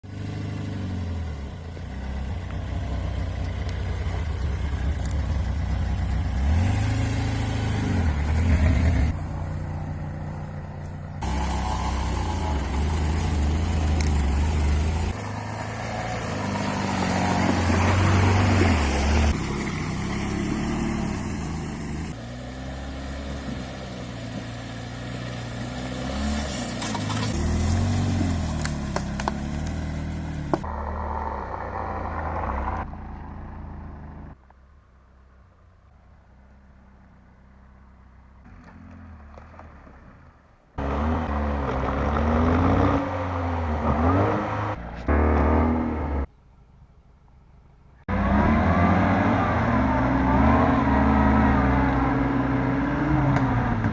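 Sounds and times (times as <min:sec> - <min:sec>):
car engine revving: 0:04.3 - 0:09.4, 0:11.2 - 0:23.6, 0:40.8 - 0:46.3, 0:48.1 - 0:53.9.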